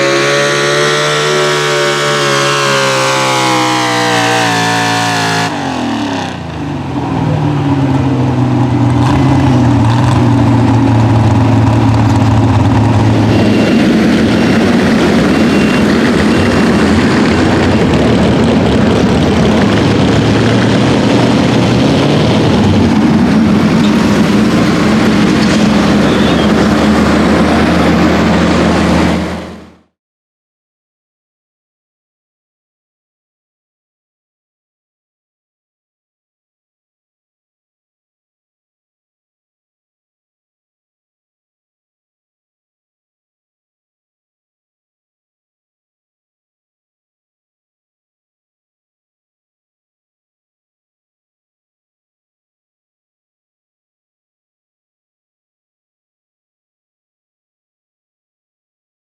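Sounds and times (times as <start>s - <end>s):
truck engine revving with rough rasp: 0.0s - 29.9s.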